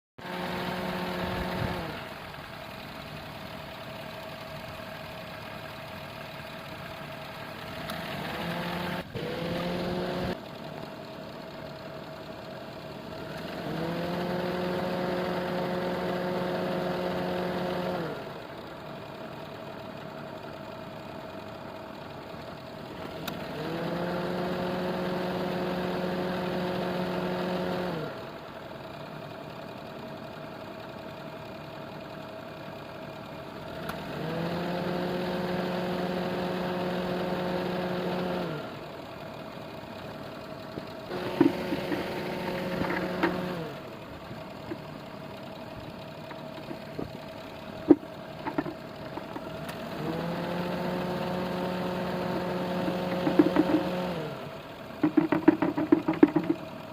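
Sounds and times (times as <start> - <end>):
car engine running: 0.2 - 56.9
pitched hum: 40.0 - 54.4.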